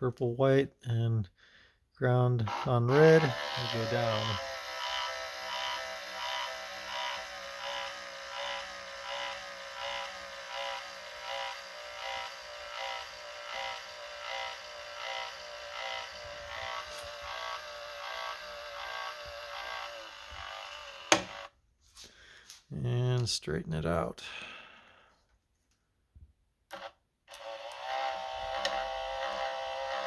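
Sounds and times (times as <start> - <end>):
electric mirror motor whining: 2.4 - 21.6, 26.7 - 30.0.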